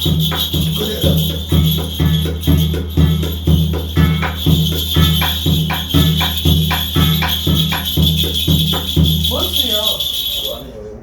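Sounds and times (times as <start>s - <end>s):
drum beating steadily: 0.0s - 10.7s
bells jingling: 0.0s - 10.9s.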